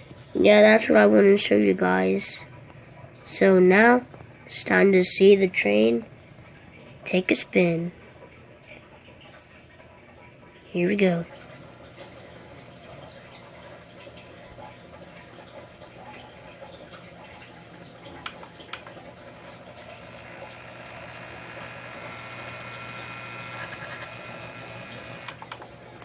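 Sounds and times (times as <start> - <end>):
toy train whirring on track: 20.0 - 25.5.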